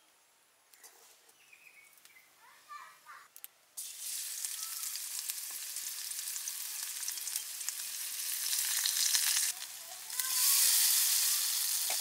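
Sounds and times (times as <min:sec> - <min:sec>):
vegetables sizzling in hot oil: 0:03.8 - 0:12.0.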